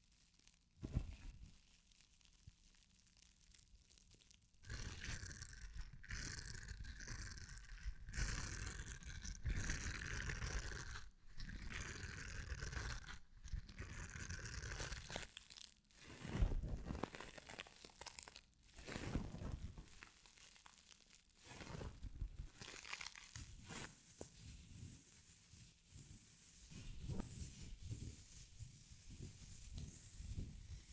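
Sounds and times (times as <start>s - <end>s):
crinkling crumpled material: 0.0s - 5.2s, 12.7s - 30.9s.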